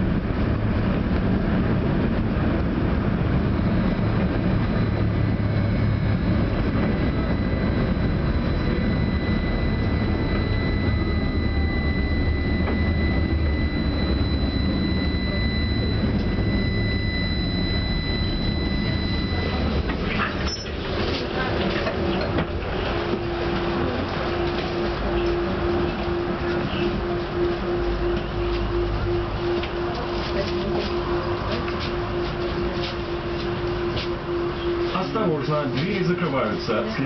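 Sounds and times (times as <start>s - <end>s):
high-pitched whine: 0.0s - 37.0s
tram wheels rumbling: 0.0s - 37.0s.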